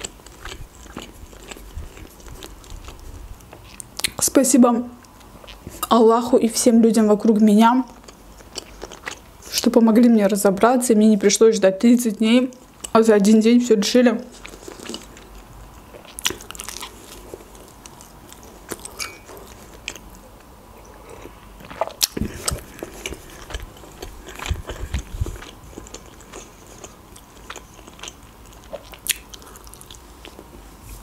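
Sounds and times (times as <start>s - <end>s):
biting and chewing crusty bread: 0.0s - 4.1s, 14.4s - 20.2s, 21.2s - 30.5s.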